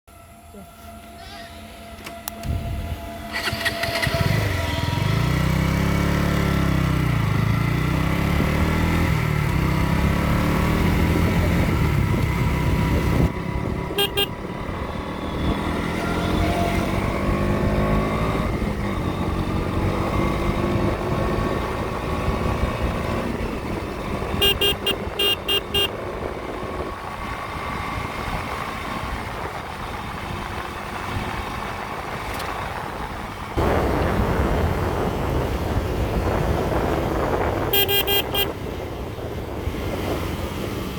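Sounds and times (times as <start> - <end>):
motorcycle engine revving: 2.2 - 40.9
horn beeps: 13.7 - 16.9, 24.2 - 26.2, 37.7 - 38.6.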